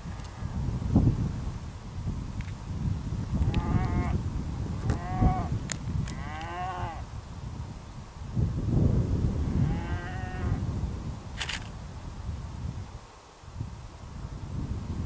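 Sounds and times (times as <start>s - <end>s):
wind rumble on microphone: 0.0s - 15.0s
cattle mooing: 3.5s - 4.2s, 6.2s - 7.0s, 9.6s - 10.6s.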